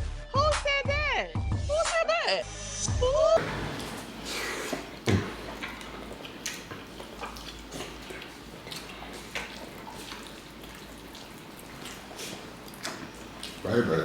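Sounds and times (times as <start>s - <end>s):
wet chewing and mouth sounds: 3.4s - 14.0s.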